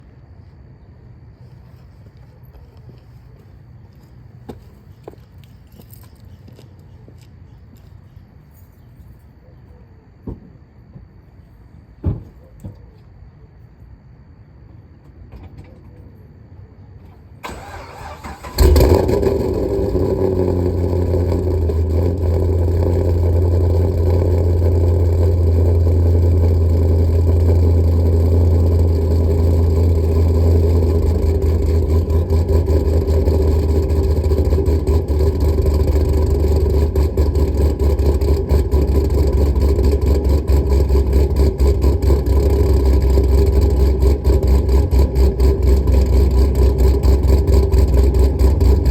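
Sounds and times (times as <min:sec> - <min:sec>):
car engine idling choppily: 0:17.4 - 0:48.9.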